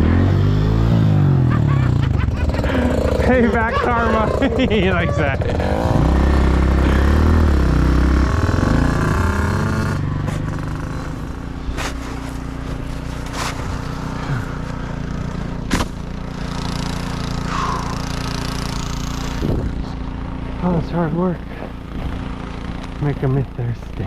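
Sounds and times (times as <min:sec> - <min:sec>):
dirt bike engine: 0:00.0 - 0:24.0
low engine drone: 0:00.0 - 0:24.0
sharp knocks: 0:15.7 - 0:16.0.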